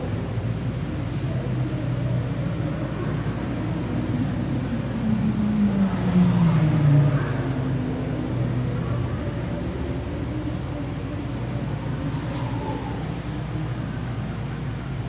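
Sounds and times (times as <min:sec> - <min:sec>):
race car engines: 0:00.0 - 0:15.0
race car passing by: 0:05.2 - 0:10.0.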